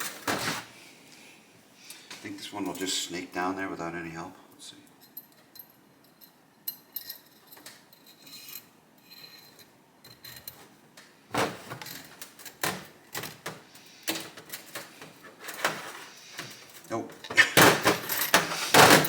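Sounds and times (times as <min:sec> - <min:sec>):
wiring clicks and rustles: 0:04.9 - 0:19.0
knocks and scrapes of parts: 0:05.3 - 0:16.9, 0:17.6 - 0:19.0.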